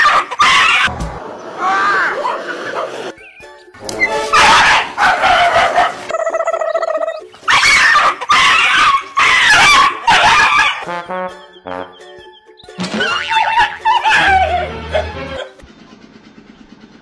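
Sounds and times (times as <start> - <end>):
dog crying loudly: 0.0 - 0.9, 4.1 - 10.9, 13.0 - 15.5
dog's pitched call: 0.0 - 0.9, 4.1 - 6.1, 7.5 - 10.9, 13.2 - 15.5.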